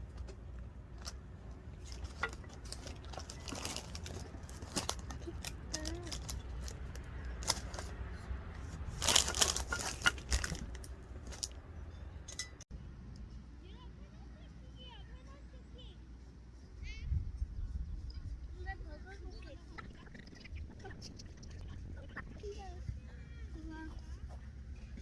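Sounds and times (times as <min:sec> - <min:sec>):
crinkling and rustling: 0:00.0 - 0:11.6.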